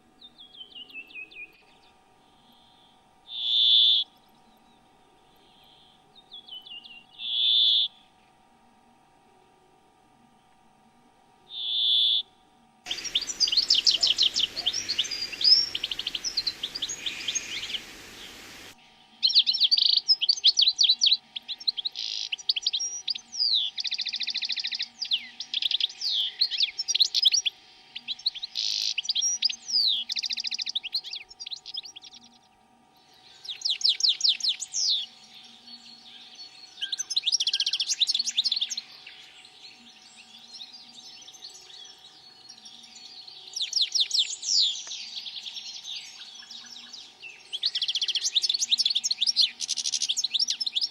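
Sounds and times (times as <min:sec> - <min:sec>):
songbirds chirping and trilling: 0:12.9 - 0:19.4, 0:20.1 - 0:50.9.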